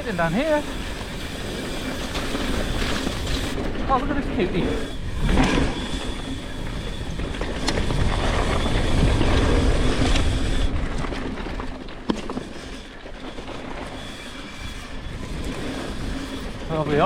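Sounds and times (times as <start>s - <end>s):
bike frame and chain rattle: 0.0s - 17.0s
bike tyre noise on dirt: 0.0s - 17.0s
wind on the microphone: 0.4s - 11.6s.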